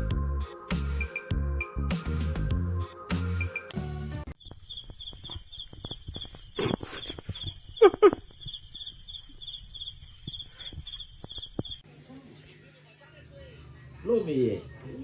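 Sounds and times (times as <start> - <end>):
insect chirping: 4.4 - 11.8
loud animal calls: 4.6 - 11.8.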